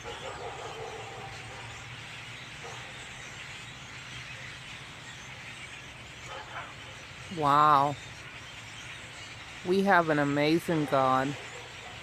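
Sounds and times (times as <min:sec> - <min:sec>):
flock of birds chattering: 0:00.0 - 0:12.0.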